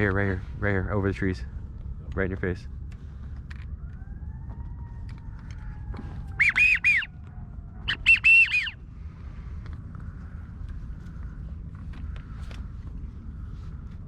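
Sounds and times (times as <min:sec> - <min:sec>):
waterfowl whistle call: 0:06.3 - 0:07.2, 0:07.9 - 0:08.8.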